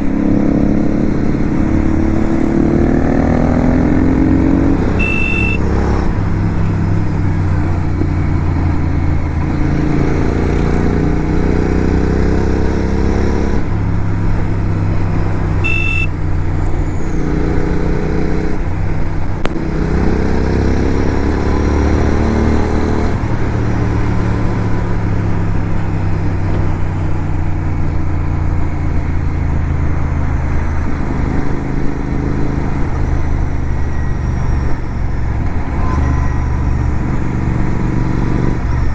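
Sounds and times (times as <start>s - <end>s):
motorcycle engine accelerating: 0.0s - 38.9s
short high beeps: 4.9s - 6.0s, 15.6s - 16.2s.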